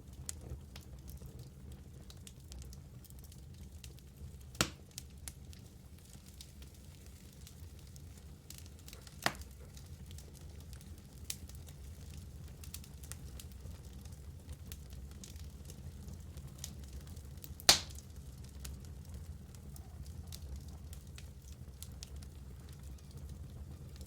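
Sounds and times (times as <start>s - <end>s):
fire crackling: 0.0s - 24.0s
wood fire burning: 0.0s - 24.0s
sharp pop of fire: 4.6s - 4.8s, 9.2s - 9.6s, 17.6s - 18.0s.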